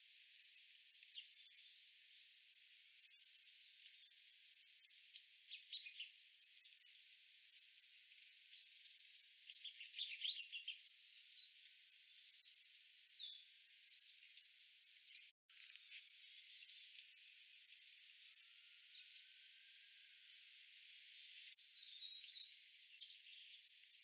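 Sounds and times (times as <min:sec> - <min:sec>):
sparrows chipping: 0:00.9 - 0:01.9, 0:04.8 - 0:07.2, 0:08.0 - 0:13.5, 0:15.0 - 0:19.3, 0:21.1 - 0:24.0
bird whistled notes: 0:09.6 - 0:11.6.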